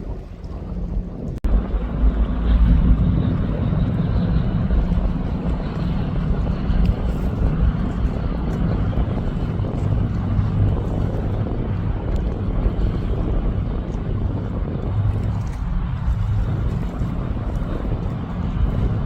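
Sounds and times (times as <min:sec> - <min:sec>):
low engine drone: 0:00.0 - 0:19.0
wind buffeting microphone: 0:00.0 - 0:19.0.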